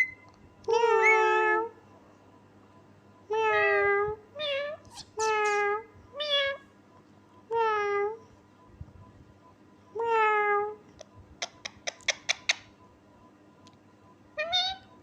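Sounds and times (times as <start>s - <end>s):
parrot imitating cat meow: 14.4s - 14.9s.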